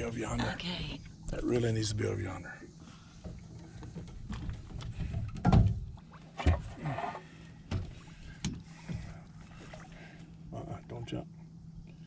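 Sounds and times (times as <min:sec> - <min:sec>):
low steady hum: 0:00.0 - 0:12.0
knocks and thumps on boat: 0:03.2 - 0:06.9, 0:07.6 - 0:09.7.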